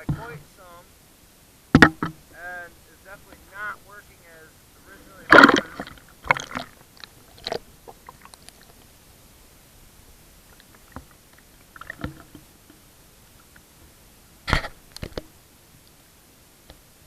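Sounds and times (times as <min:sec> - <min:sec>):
knocks against hull: 0:01.7 - 0:02.2
water sloshing against kayak: 0:01.7 - 0:15.3.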